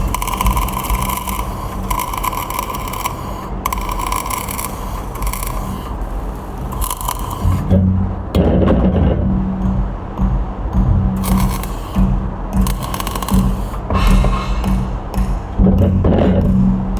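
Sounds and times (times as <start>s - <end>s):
welding arc crackling: 0.0s - 7.8s, 11.2s - 15.3s.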